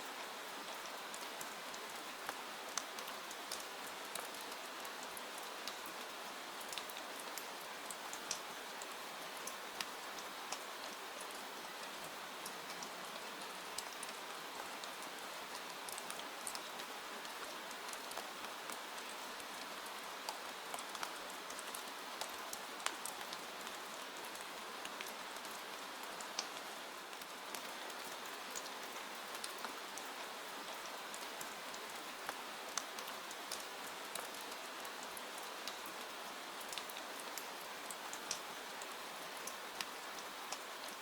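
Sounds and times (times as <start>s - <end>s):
steady rain: 0.0s - 41.0s.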